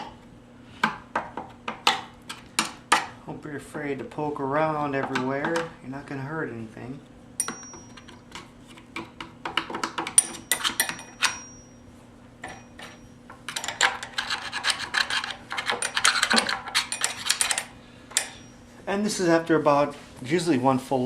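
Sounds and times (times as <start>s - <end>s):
tool clicking and tapping: 7.4s - 11.6s, 12.4s - 18.4s.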